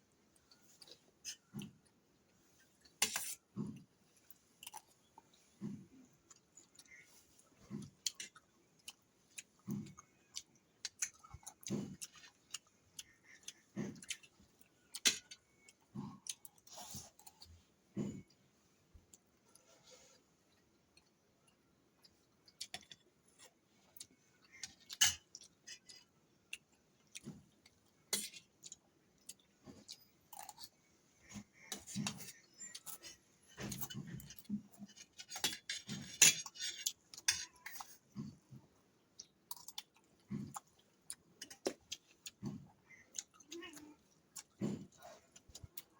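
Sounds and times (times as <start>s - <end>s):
person chewing rice: 0.0s - 45.9s.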